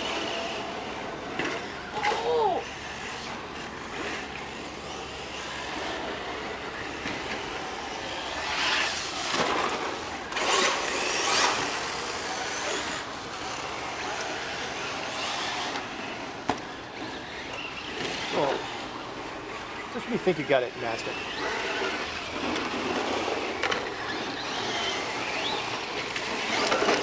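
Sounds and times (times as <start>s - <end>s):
rc car motors and tyres on dirt: 0.0s - 27.0s.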